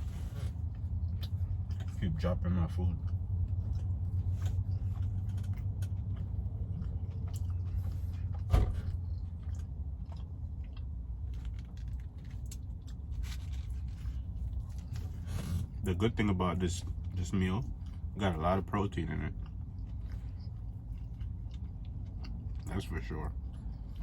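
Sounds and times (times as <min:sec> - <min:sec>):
person chewing food: 0:00.6 - 0:02.2, 0:02.8 - 0:15.8, 0:16.8 - 0:18.2, 0:19.2 - 0:24.0.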